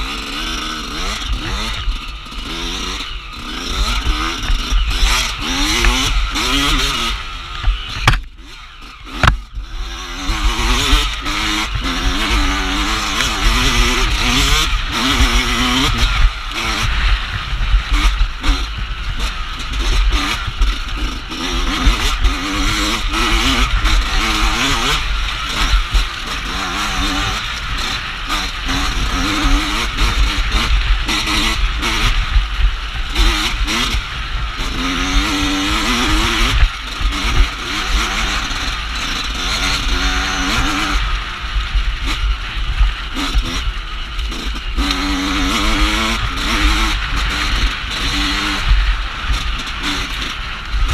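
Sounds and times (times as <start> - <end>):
dirt bike engine revving: 0.0 - 50.9
sharp knock: 8.0 - 8.3, 9.2 - 9.4.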